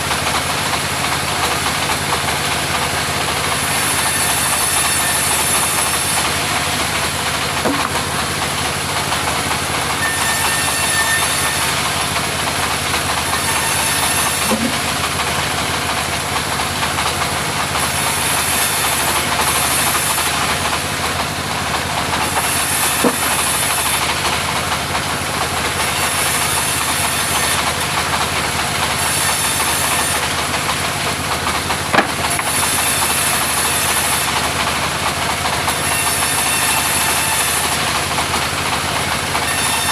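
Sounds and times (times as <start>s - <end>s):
sawmill engine droning: 0.0s - 39.9s
short knocks: 7.6s - 8.0s.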